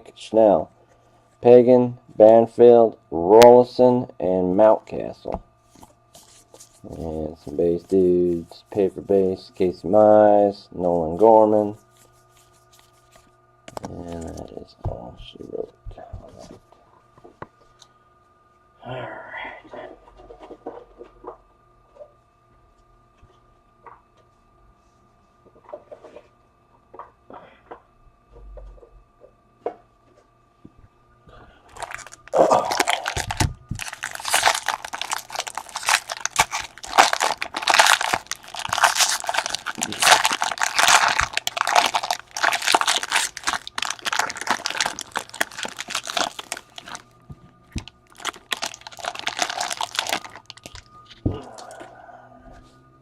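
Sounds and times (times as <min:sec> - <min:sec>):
packaging torn and crumpled: 0:31.7 - 0:47.0, 0:47.7 - 0:50.9.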